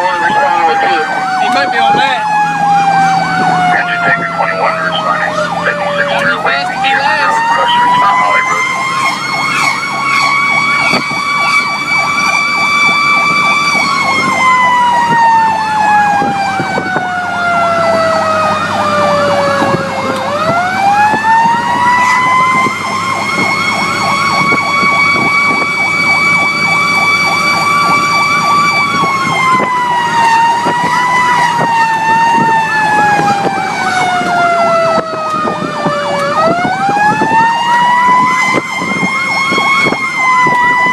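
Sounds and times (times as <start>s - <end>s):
fast repeating siren: 0.0s - 40.9s
fire engine siren wailing: 0.0s - 40.9s
truck engine running: 0.0s - 40.9s.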